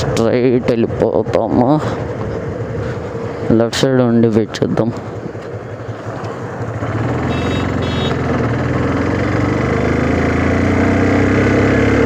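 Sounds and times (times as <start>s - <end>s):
motorcycle engine accelerating: 5.0s - 12.0s
short high beeps: 7.3s - 8.2s.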